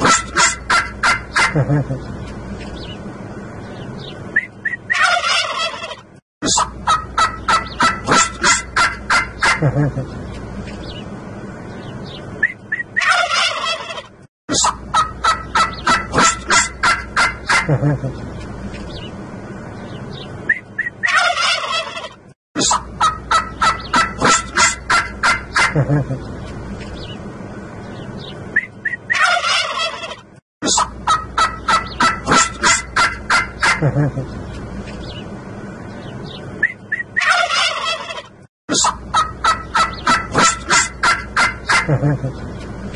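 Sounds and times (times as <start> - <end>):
turkeys gobbling: 0.0 - 2.0, 4.6 - 10.1, 12.4 - 18.2, 20.5 - 26.3, 28.6 - 34.3, 36.6 - 42.5.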